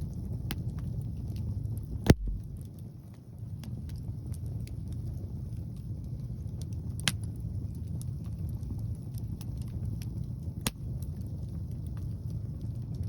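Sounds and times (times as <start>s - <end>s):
wood fire crackling: 0.0s - 13.0s
sharp fire pops: 2.0s - 3.0s.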